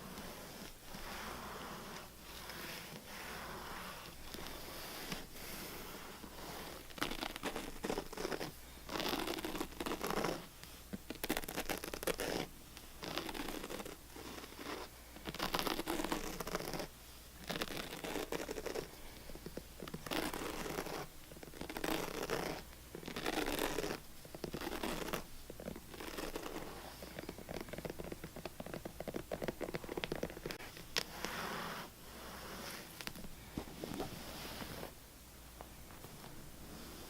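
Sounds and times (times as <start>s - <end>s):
scratching on a surface: 0.0s - 35.0s.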